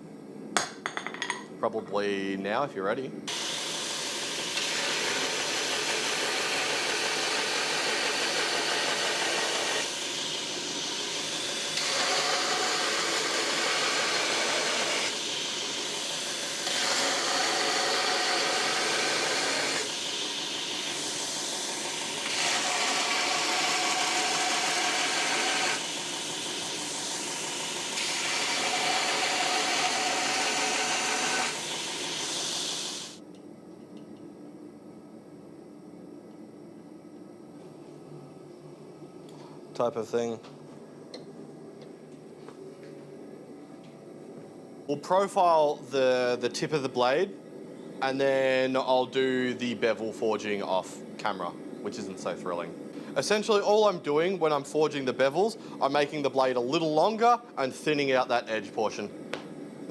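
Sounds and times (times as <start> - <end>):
loud machine noise: 3.3 - 33.2.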